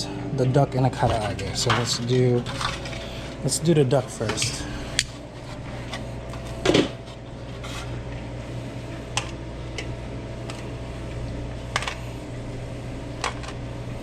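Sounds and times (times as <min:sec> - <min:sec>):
kitchen equipment hum: 0:00.0 - 0:14.0
loud kitchen clatter: 0:00.9 - 0:04.7.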